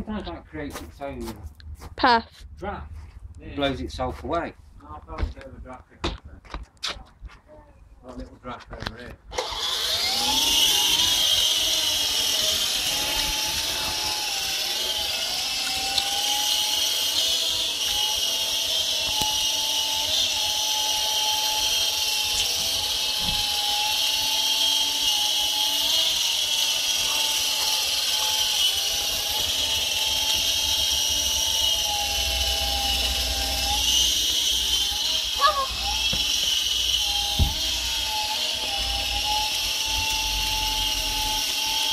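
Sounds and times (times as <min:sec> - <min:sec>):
small electric motors whining: 0:08.9 - 0:41.9.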